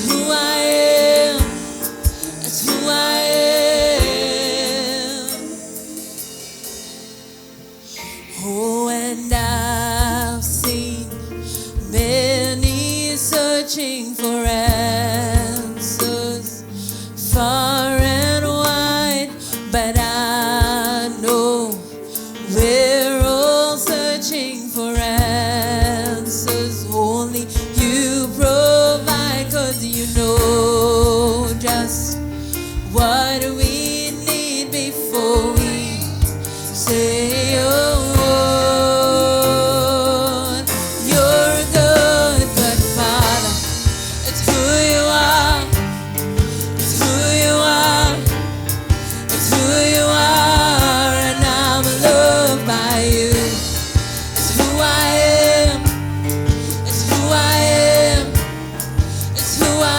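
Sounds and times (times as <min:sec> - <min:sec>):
band accompaniment: 0:00.0 - 0:07.8, 0:25.0 - 0:59.9
person singing with vibrato: 0:00.0 - 0:59.9.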